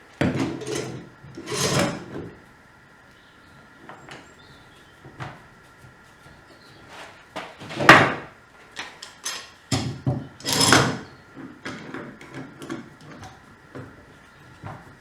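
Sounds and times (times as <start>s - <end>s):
wood scraping: 0.2s - 2.3s.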